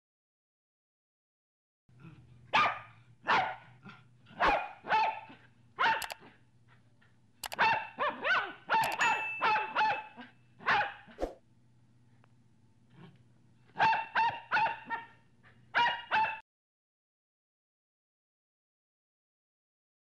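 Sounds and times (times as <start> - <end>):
puppy barking: 2.5 - 6.4, 7.4 - 11.2, 13.8 - 16.4.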